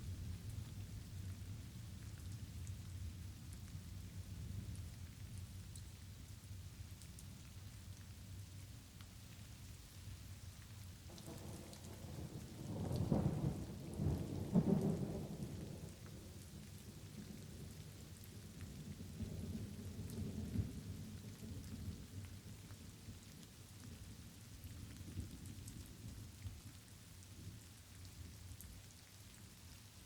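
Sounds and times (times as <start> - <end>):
light rain falling: 0.0 - 30.0
thunder rumbling: 11.1 - 16.0.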